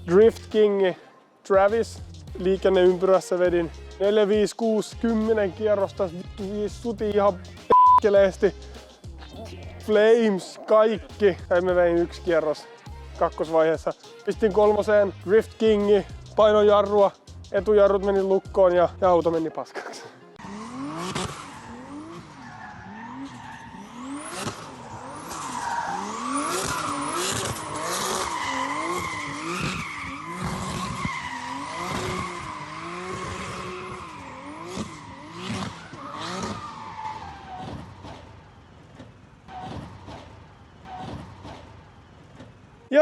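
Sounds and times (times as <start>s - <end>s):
tyres squealing: 19.7s - 41.7s
car engine revving: 20.4s - 42.4s.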